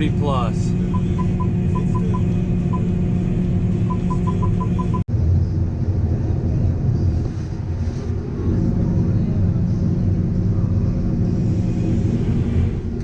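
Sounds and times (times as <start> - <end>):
farm machinery engine drone: 0.0 - 13.0
high electronic beeps: 0.9 - 2.9, 3.8 - 5.0.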